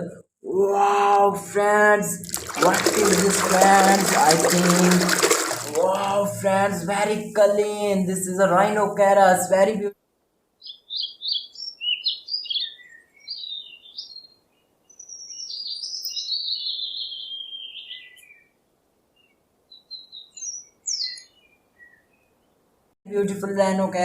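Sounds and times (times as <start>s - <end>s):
songbird singing: 10.6s - 22.6s.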